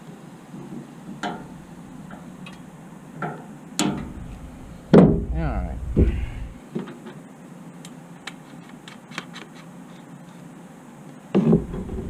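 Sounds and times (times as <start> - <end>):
loud bump: 3.9 - 6.6.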